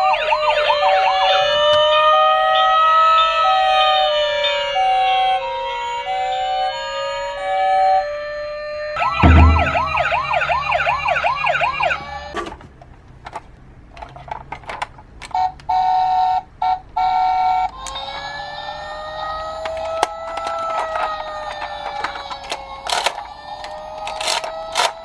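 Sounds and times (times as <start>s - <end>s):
steady siren tone: 9.0s - 11.0s.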